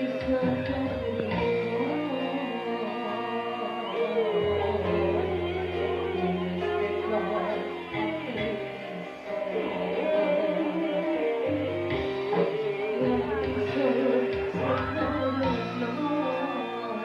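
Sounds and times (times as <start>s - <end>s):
guitar melody: 0.0s - 17.0s
bass line: 11.5s - 16.5s.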